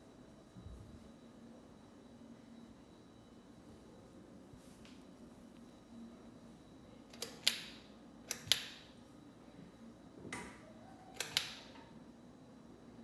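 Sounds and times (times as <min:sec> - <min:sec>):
faint steady hum: 0:00.0 - 0:13.0
pull-chain switch clicks: 0:07.1 - 0:08.9, 0:11.2 - 0:11.8.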